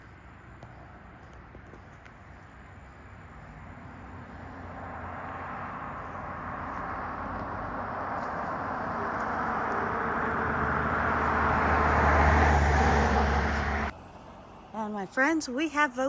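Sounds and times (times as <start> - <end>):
motor vehicle rushing hiss: 6.4 - 13.9.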